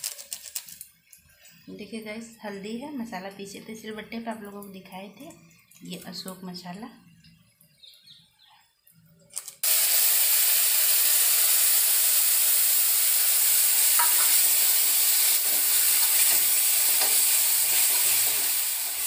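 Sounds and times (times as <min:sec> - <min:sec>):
loud sizzle in hot oil: 0:09.6 - 0:19.0
spatula stirring: 0:15.2 - 0:19.0.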